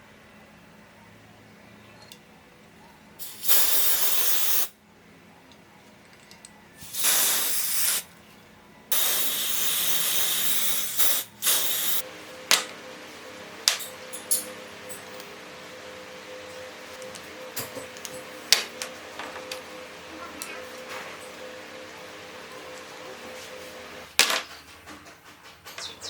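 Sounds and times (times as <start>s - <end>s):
short spray puffs: 3.2s - 4.7s, 6.8s - 8.0s, 8.9s - 12.0s
spraying hiss: 3.2s - 4.7s, 6.8s - 8.0s, 8.9s - 12.0s.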